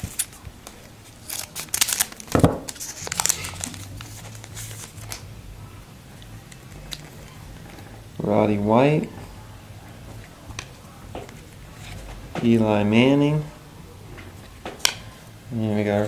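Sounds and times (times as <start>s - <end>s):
foil wrapper crinkling: 0.0s - 5.2s
low steady hum: 0.0s - 16.0s.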